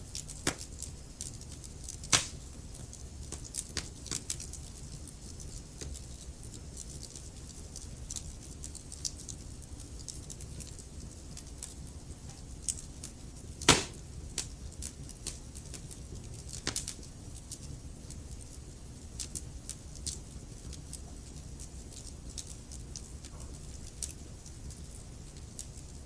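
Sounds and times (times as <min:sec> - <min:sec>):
burning logs crackling: 0:00.0 - 0:26.0.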